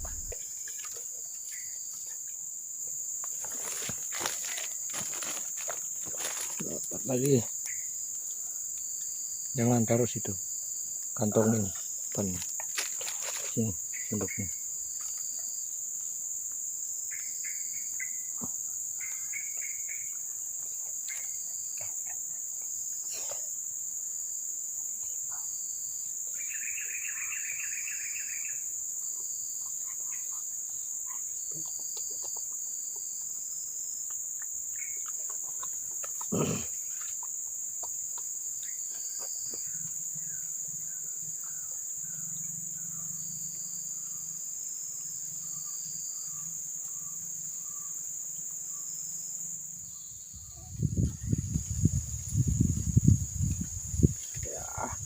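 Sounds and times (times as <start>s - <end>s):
insects droning: 0.0s - 55.0s
bird calls: 26.3s - 28.6s.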